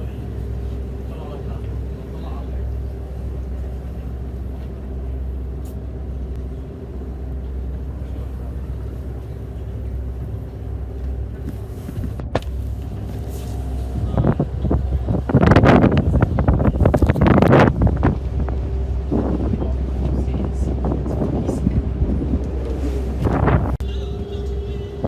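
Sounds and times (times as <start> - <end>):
engine running steadily: 0.0 - 25.0
wind buffeting microphone: 11.1 - 25.0.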